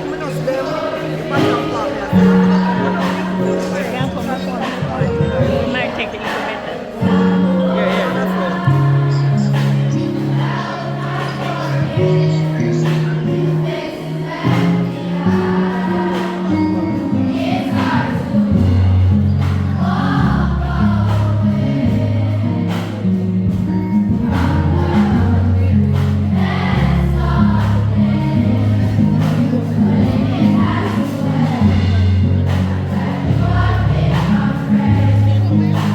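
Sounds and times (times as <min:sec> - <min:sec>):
choir singing gospel: 0:00.0 - 0:35.9
steady drum beat: 0:00.0 - 0:35.9
bass notes: 0:07.0 - 0:35.9.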